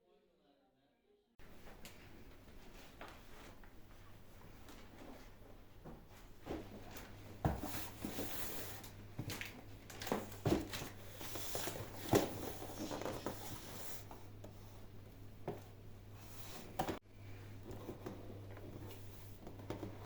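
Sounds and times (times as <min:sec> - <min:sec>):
objects being handled and set down: 0:01.4 - 0:14.6.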